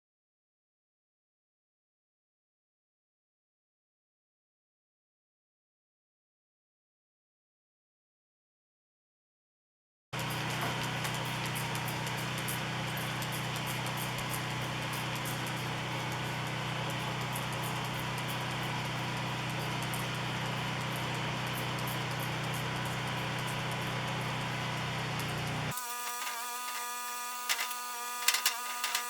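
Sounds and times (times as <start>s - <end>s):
power tool motor running: 10.2s - 29.0s.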